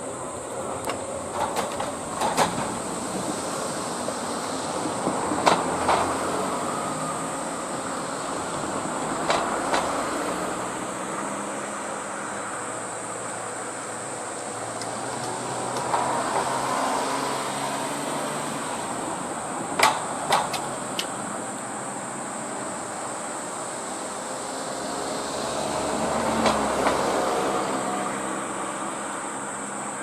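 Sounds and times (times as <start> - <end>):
electric train on rails: 0.0 - 30.0
wheel clacks over rail joints: 0.5 - 6.9, 8.5 - 10.6, 14.8 - 17.0, 18.9 - 21.2, 26.0 - 27.2.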